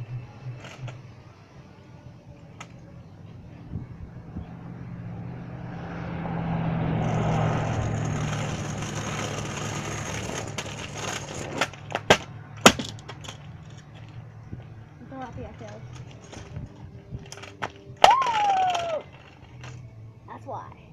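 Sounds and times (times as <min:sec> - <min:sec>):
scooter wheels rolling on pavement: 0:00.5 - 0:01.2, 0:02.3 - 0:20.5
scooter clattering on ground: 0:07.0 - 0:19.9.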